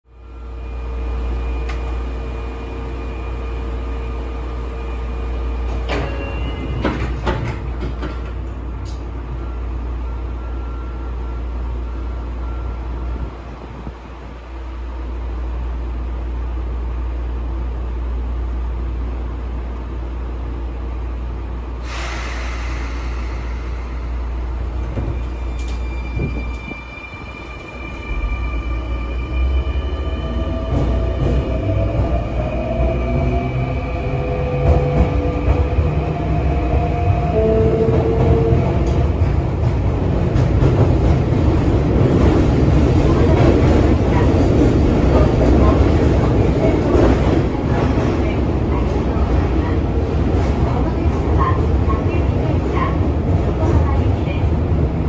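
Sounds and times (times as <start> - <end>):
train interior rumble and hum: 0.0 - 55.0
hissing air burst: 21.8 - 24.5.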